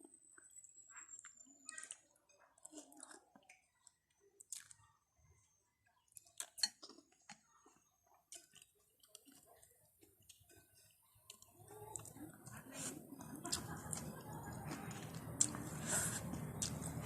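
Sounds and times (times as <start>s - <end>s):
chewing noodles and beef: 0.3s - 5.1s, 5.9s - 17.0s
mouth clicks and smacks: 16.6s - 17.0s.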